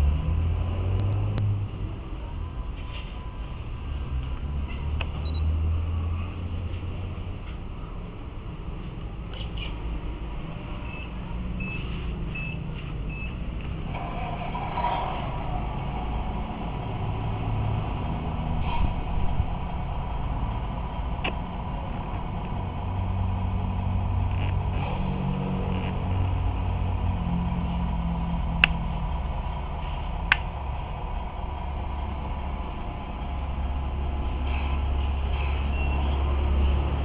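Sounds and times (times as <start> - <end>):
truck engine running: 0.0 - 37.0
sharp clicks: 28.6 - 28.8.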